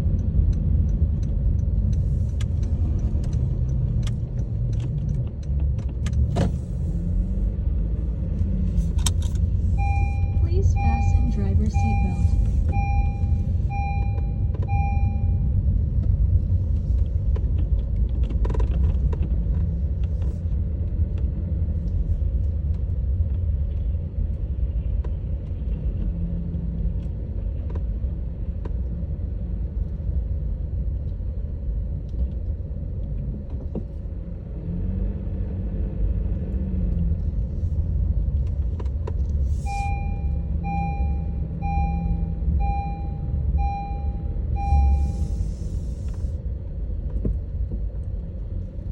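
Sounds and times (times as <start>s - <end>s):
car road and engine rumble: 0.0s - 48.9s
electronic warning beep: 9.8s - 15.5s, 39.6s - 45.5s.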